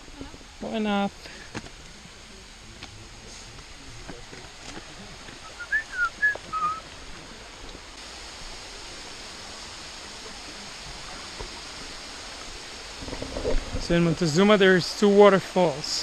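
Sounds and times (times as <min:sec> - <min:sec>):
waterfall rushing: 0:01.1 - 0:16.0
whistled notes sliding: 0:05.4 - 0:06.8.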